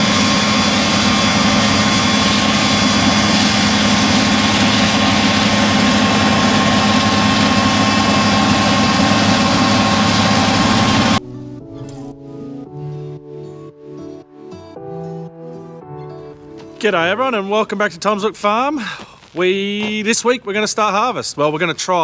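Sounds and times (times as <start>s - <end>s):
heavy machine engine droning: 0.0s - 11.2s
steady whine: 0.0s - 11.2s.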